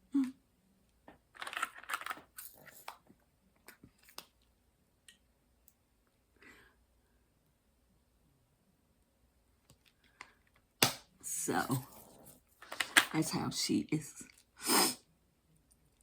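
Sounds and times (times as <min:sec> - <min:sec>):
rustling of handled objects: 0:01.0 - 0:04.5, 0:11.3 - 0:13.3.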